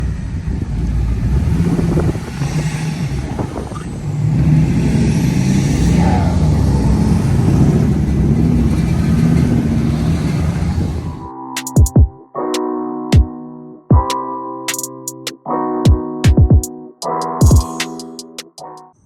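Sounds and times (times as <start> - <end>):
vehicle engine rumbling: 0.0 - 11.3.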